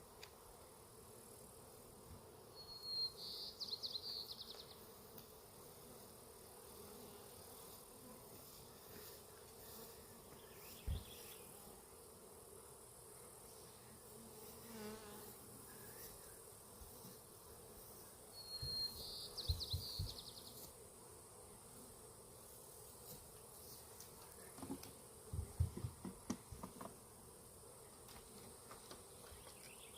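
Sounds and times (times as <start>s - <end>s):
honeybees buzzing: 0.0s - 29.9s
bee passing close: 4.7s - 18.2s.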